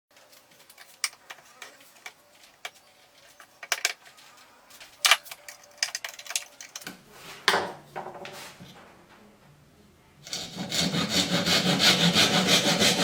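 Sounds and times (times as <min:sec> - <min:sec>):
tools and wood clicking: 0:00.6 - 0:04.1, 0:05.0 - 0:06.9.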